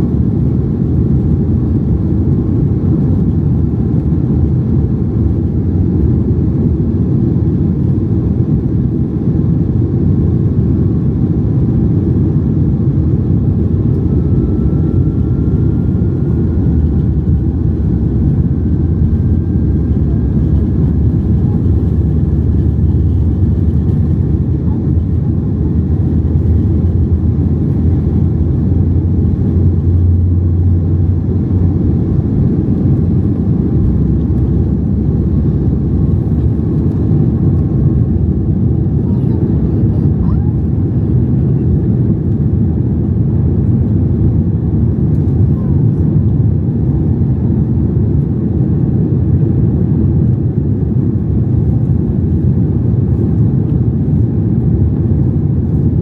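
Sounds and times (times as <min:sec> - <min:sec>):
low hum: 0:00.0 - 0:40.8
low airplane cabin rumble: 0:00.0 - 0:56.0.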